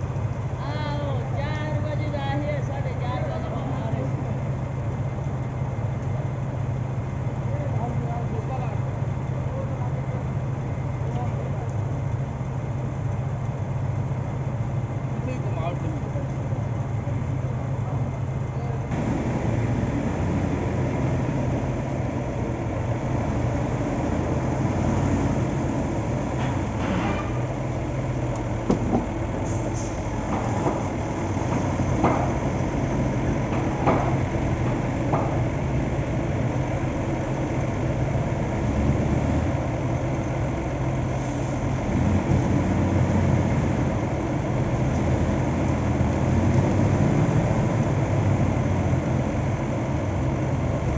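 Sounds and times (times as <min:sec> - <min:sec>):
diesel machinery running: 0:00.0 - 0:50.9.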